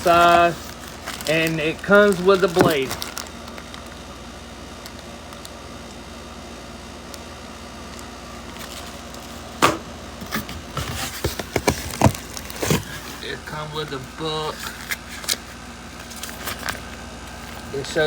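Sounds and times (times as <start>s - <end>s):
low room hum: 0.0s - 18.0s
sharp knock: 9.6s - 9.9s
tool box handling noise: 9.6s - 13.2s.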